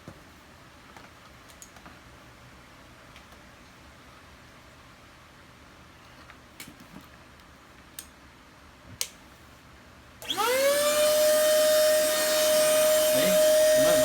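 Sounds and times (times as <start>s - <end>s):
electric inflator motor humming: 10.2s - 14.0s.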